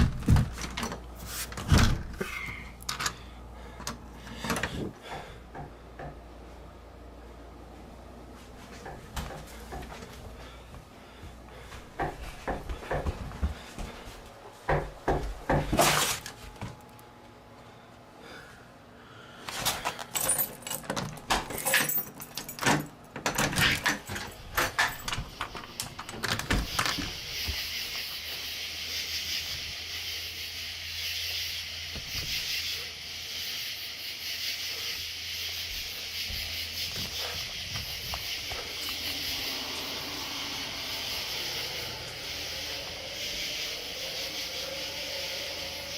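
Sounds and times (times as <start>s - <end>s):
knocking on a door: 14.7s - 15.8s
steady hiss: 24.9s - 45.9s.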